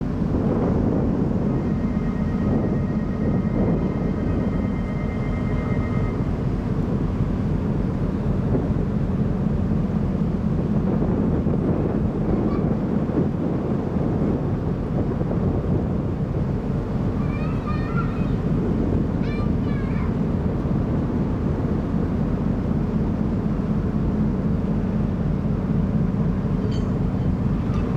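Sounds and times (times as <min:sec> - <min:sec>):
ferry engine rumble: 0:00.0 - 0:27.9
wind buffeting microphone: 0:00.0 - 0:27.9.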